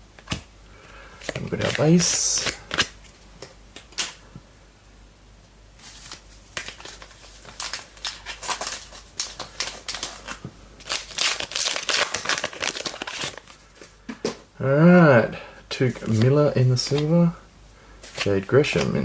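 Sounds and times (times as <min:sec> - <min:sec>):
cards rustling: 0:01.2 - 0:04.2, 0:05.8 - 0:14.4, 0:15.8 - 0:17.3, 0:18.0 - 0:19.0
wrapper crinkling and tearing: 0:06.0 - 0:13.6.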